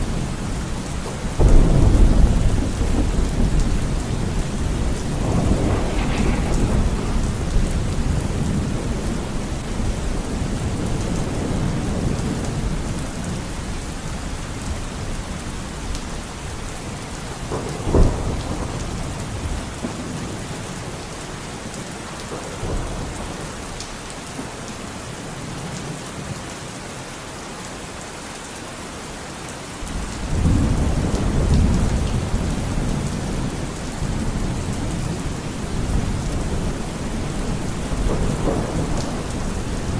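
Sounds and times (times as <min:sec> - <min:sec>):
steady rain: 0:00.0 - 0:39.9
rolling thunder: 0:00.1 - 0:13.9, 0:17.3 - 0:21.0, 0:30.2 - 0:39.9
sharp thunder crack: 0:01.4 - 0:10.8.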